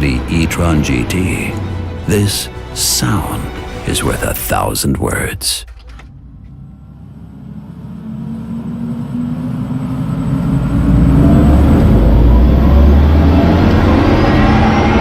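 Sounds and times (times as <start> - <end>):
electric car humming and whining: 5.7 - 15.0.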